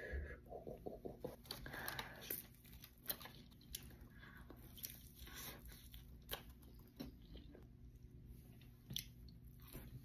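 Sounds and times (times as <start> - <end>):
biting and chewing fried chicken: 1.2 - 7.8.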